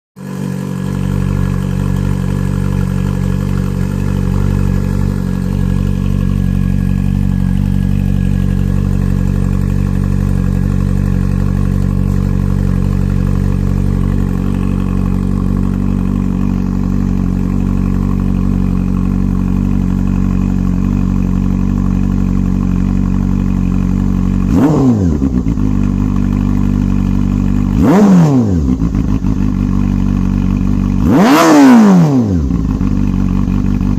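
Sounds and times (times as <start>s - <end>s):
motorcycle engine idling: 0.2s - 33.9s
throttle blips revving engine: 24.4s - 25.6s, 27.7s - 29.3s, 31.0s - 32.9s.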